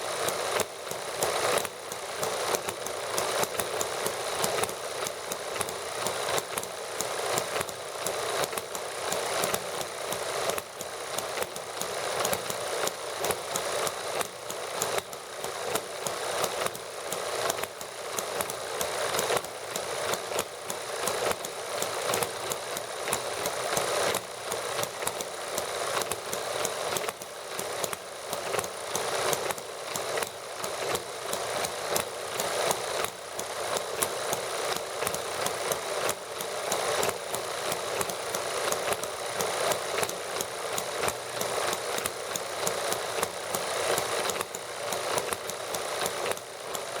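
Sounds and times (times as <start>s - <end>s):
model gasoline engines running: 0.0s - 47.0s.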